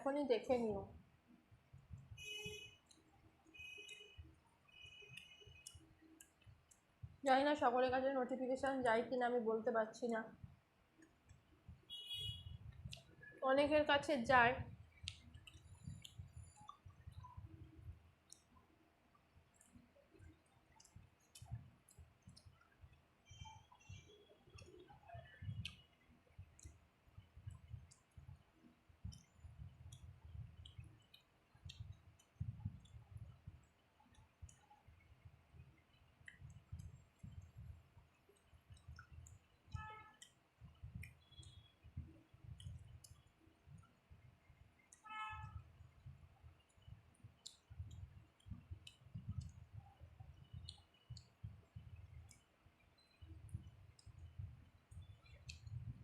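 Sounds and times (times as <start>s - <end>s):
mouth clicks and smacks: 5.0s - 6.9s, 12.6s - 13.4s, 14.8s - 17.6s, 18.2s - 18.6s, 19.5s - 28.4s, 29.0s - 45.0s, 45.8s - 56.0s.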